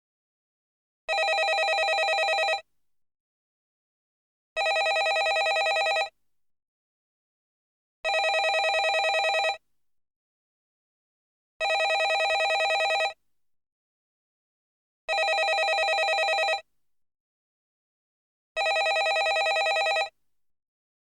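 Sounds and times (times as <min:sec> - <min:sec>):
landline telephone ringing: 0:01.1 - 0:02.6, 0:04.6 - 0:06.1, 0:08.1 - 0:09.6, 0:11.6 - 0:13.2, 0:15.1 - 0:16.6, 0:18.6 - 0:20.1.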